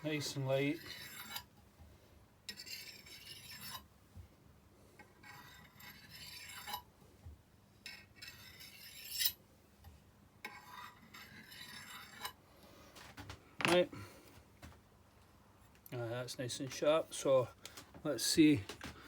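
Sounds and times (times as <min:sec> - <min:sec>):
knife scraping sharpening rod: 0:00.7 - 0:01.5, 0:02.5 - 0:03.9, 0:05.2 - 0:06.9, 0:07.8 - 0:09.4, 0:10.4 - 0:12.4.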